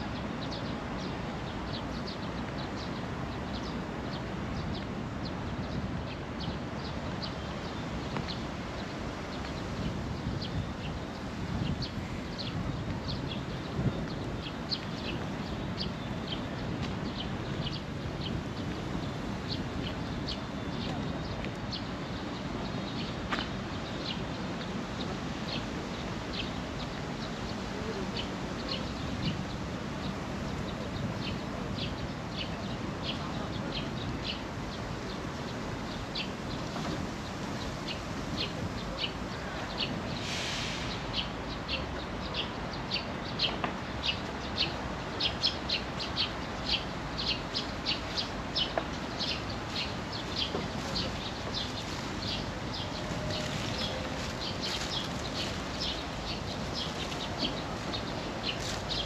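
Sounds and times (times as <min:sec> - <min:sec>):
brief hiss: 0:40.2 - 0:41.0.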